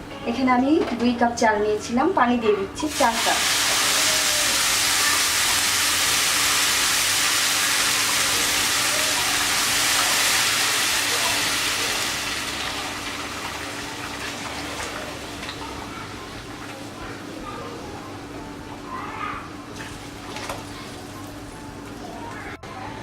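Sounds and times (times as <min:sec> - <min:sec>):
water sizzling in hot oil: 0:02.8 - 0:15.8.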